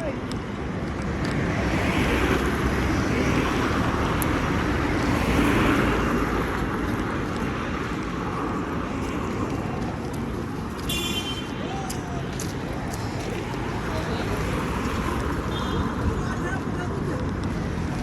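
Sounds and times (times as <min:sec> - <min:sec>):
street traffic rumble: 0:00.0 - 0:18.0
vehicle passing by: 0:01.4 - 0:10.9, 0:11.5 - 0:15.5.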